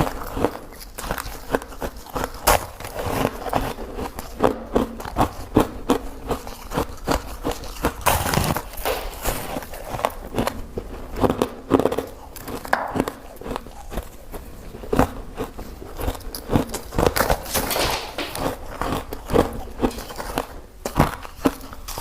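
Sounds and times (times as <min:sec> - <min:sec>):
person crunching ice: 0:00.0 - 0:14.2, 0:18.4 - 0:22.0.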